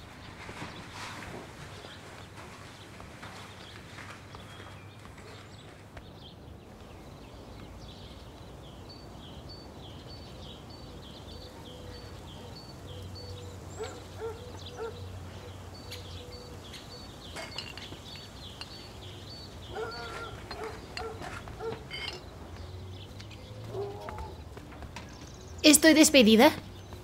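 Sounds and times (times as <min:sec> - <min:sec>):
outdoor background noise: 0:00.0 - 0:27.0
bird chirping call: 0:03.4 - 0:27.0
faint clinks: 0:16.7 - 0:22.6.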